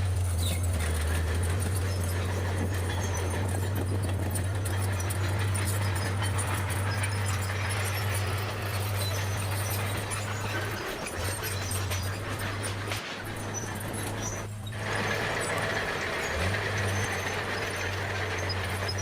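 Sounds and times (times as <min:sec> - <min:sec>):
bulldozer diesel engine droning: 0:00.0 - 0:19.0.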